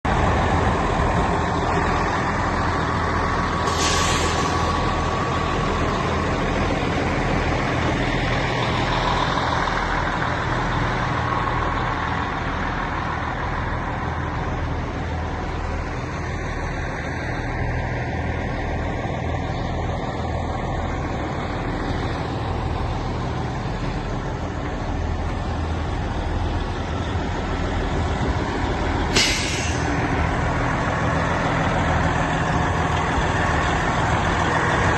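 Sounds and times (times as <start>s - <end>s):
truck engine running: 0.0s - 34.9s
short air hisses: 3.6s - 4.8s, 29.1s - 30.0s.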